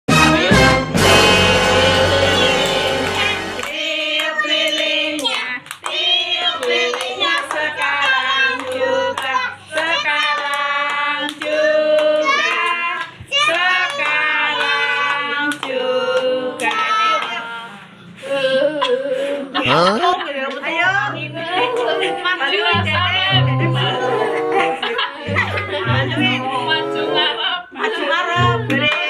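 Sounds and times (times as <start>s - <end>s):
children singing: 0.1s - 5.2s
hands clapping: 1.6s - 17.4s.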